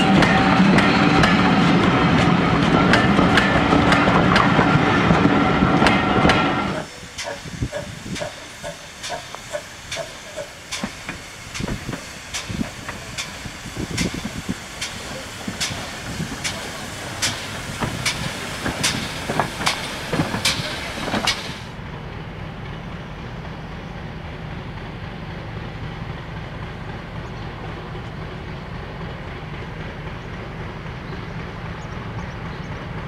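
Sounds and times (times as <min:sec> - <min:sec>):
railway coaches clattering past: 0:00.0 - 0:33.0
sharp locomotive exhaust beats: 0:00.0 - 0:33.0
steam locomotive moving slowly: 0:00.0 - 0:33.0
steam hiss: 0:05.5 - 0:21.8.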